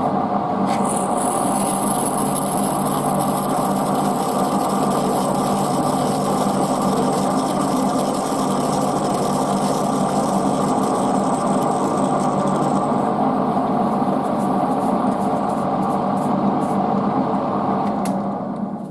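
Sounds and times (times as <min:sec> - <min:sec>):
metal lathe humming: 0:00.7 - 0:13.8.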